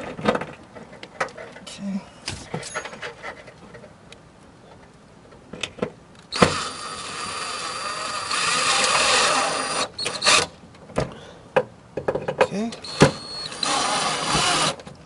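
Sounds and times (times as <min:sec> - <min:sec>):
cordless drill driving screw into metal: 0:06.3 - 0:10.5, 0:12.8 - 0:14.9.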